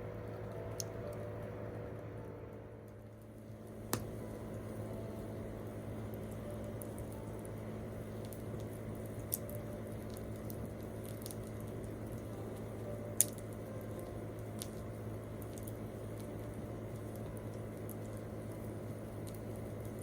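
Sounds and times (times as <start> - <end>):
steady low hum: 0.0 - 20.0
campfire crackling and popping: 5.7 - 20.0.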